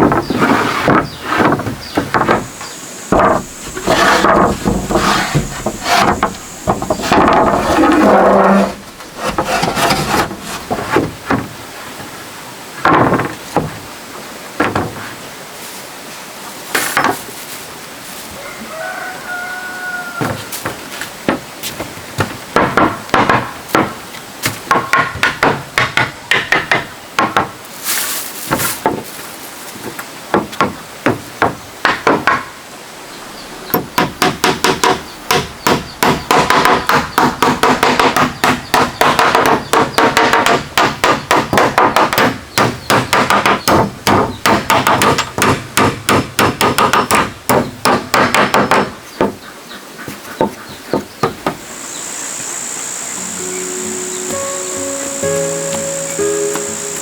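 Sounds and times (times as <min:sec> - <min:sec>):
chicken calling: 0:18.4 - 0:20.3, 0:51.6 - 0:57.0
hammer striking nails into wood: 0:33.8 - 0:49.0.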